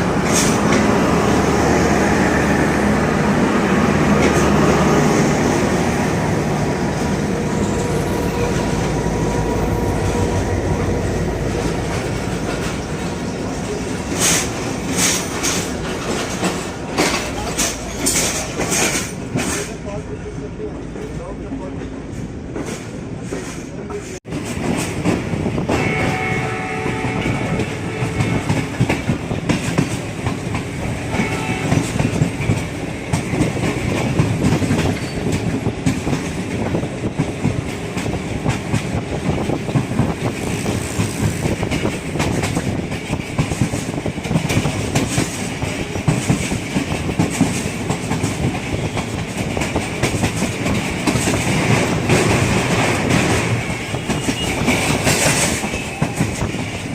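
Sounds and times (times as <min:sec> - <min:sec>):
train running heard from inside: 0:00.0 - 0:56.9
wheels clattering over rail joints: 0:06.8 - 0:20.0, 0:27.6 - 0:56.9
train horn: 0:25.7 - 0:29.0, 0:31.0 - 0:32.2.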